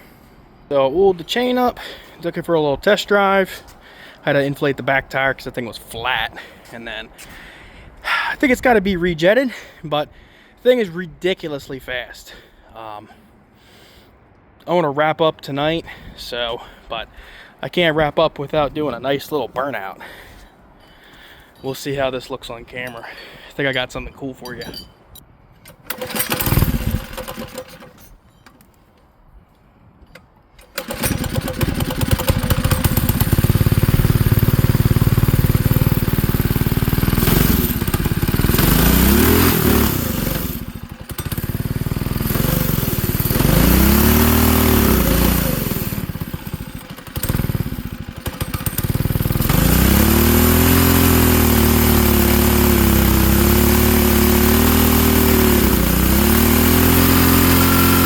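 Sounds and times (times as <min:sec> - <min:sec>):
small engine revving: 0:25.9 - 0:27.9, 0:30.6 - 0:58.0.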